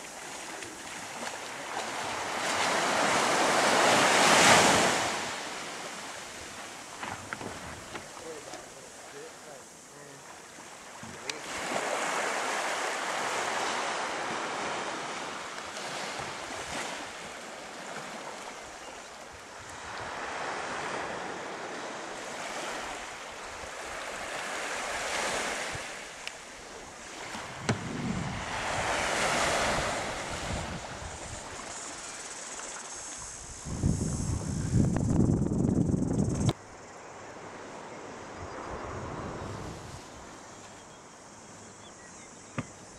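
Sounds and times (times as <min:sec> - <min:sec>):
water washing in swells: 0:00.0 - 0:35.0
wind buffeting microphone: 0:27.4 - 0:31.7, 0:33.4 - 0:36.6.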